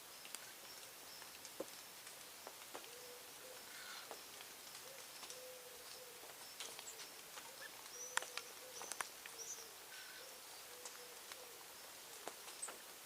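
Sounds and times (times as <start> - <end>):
birds chirping: 0.0 - 13.0
low cooing: 4.8 - 6.3, 6.9 - 12.3.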